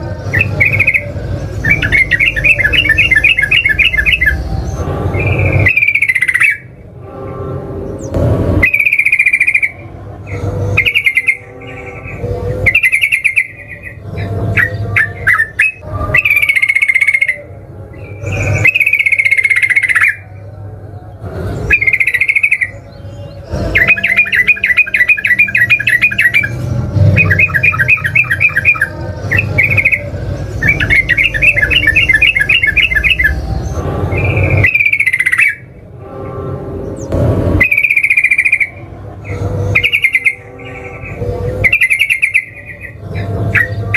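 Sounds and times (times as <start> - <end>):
fast rattling bird trills: 0.0 - 6.8, 8.0 - 20.4, 21.6 - 35.7, 36.9 - 43.9
bulbul singing: 0.0 - 43.9.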